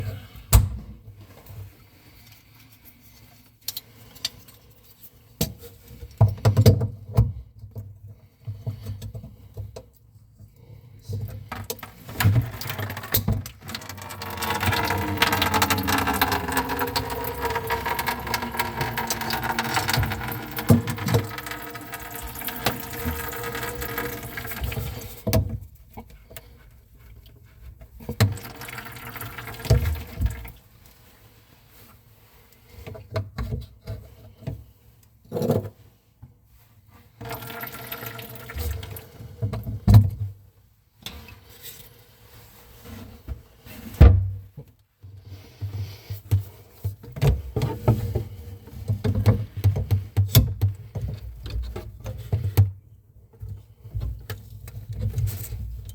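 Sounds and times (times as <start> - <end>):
plumbing tools knocking and rattling: 11.5 - 25.1.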